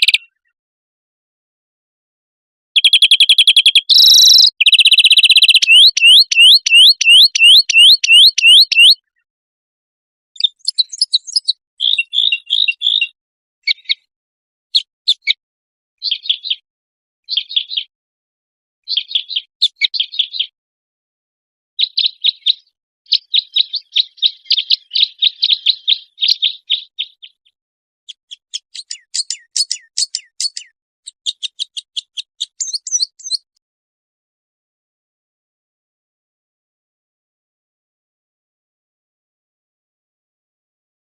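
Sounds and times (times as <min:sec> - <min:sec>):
bird whistling: 0:00.0 - 0:00.4, 0:02.8 - 0:09.0, 0:10.4 - 0:14.0, 0:21.8 - 0:27.4, 0:28.1 - 0:33.4
bird chirping phrases: 0:00.0 - 0:00.6, 0:02.8 - 0:09.3, 0:10.4 - 0:14.1, 0:14.7 - 0:15.4, 0:16.0 - 0:16.6, 0:17.2 - 0:17.9, 0:18.8 - 0:20.6, 0:21.8 - 0:33.6.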